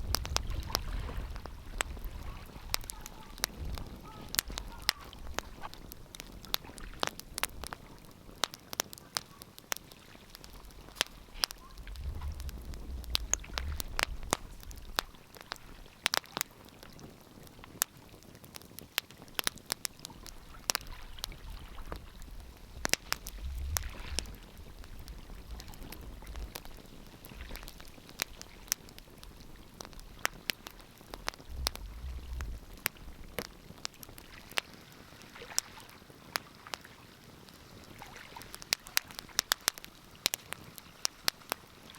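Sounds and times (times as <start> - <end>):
low rumbles: 0.0 - 6.5, 10.4 - 15.8, 20.2 - 34.3
wood fire crackling and popping: 0.0 - 41.9.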